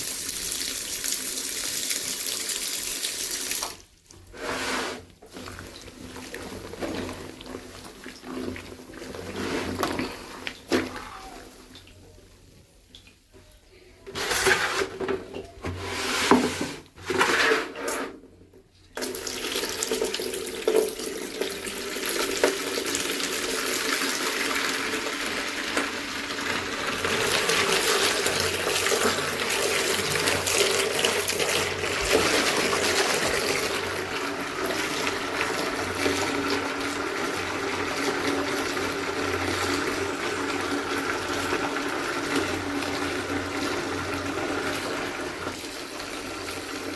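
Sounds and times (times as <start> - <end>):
water running and splashing: 19.1 - 46.9.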